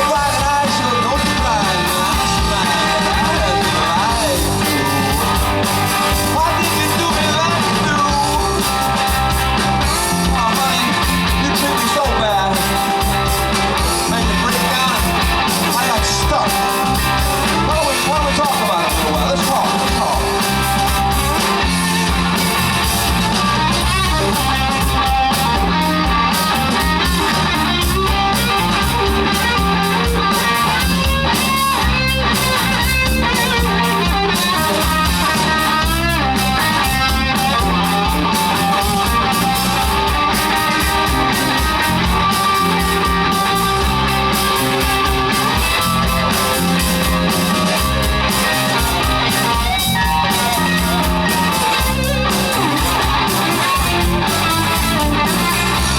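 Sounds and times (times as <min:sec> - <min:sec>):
person singing: 0:00.0 - 0:09.0, 0:09.9 - 0:20.4
rock band playing: 0:00.0 - 0:55.9.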